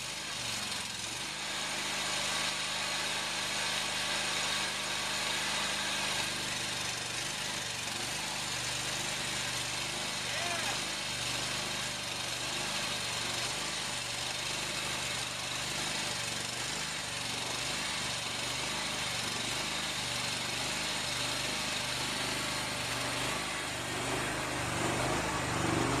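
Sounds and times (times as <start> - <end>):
gasoline engine running: 6.3 - 26.0.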